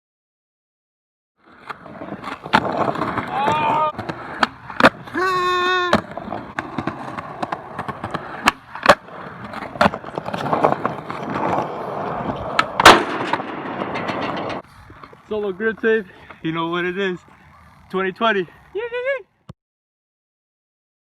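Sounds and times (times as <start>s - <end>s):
skateboard wheels rolling on concrete: 1.4s - 19.4s
skateboard clacks and slaps: 1.8s - 14.6s
shout or squeal: 3.3s - 3.9s.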